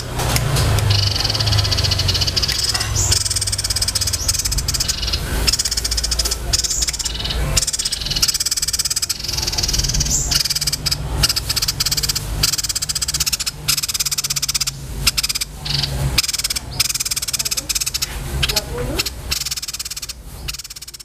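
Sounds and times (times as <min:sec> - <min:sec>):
songbirds chattering trills: 0:00.0 - 0:21.0
steady low hum: 0:00.0 - 0:21.0.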